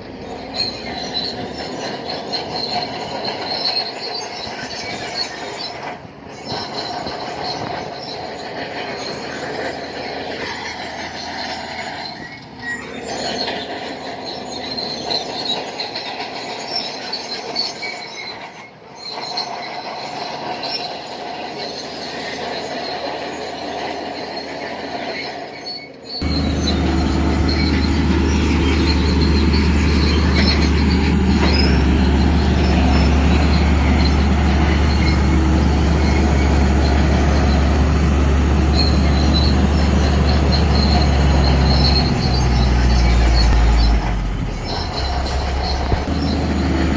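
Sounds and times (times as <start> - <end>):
bulldozer tracks squealing and clanking: 0.0 - 46.9
low engine drone: 26.2 - 46.9.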